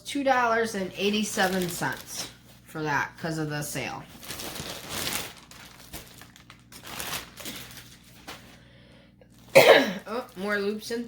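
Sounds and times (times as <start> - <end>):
bag crinkling: 0.9 - 2.6, 4.1 - 8.6, 9.3 - 10.8.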